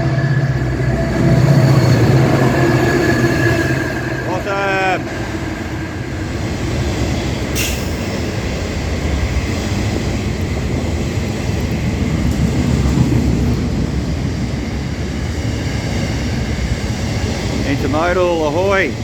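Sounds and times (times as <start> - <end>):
high-pitched squeal: 0.0 - 8.4
train wheels rumbling on rail: 0.0 - 19.0.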